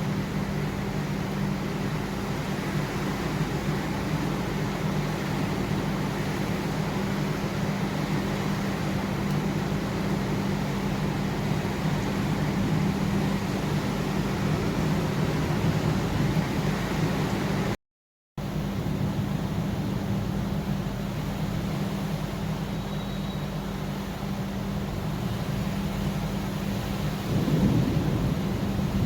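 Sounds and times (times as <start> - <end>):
heavy rain hiss: 18.5 - 29.0.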